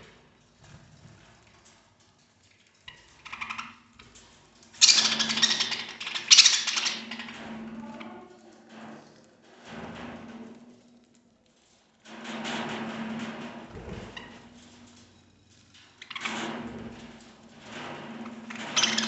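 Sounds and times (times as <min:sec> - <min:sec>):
budgerigars clicking and rustling: 0:02.5 - 0:08.1, 0:18.5 - 0:19.0.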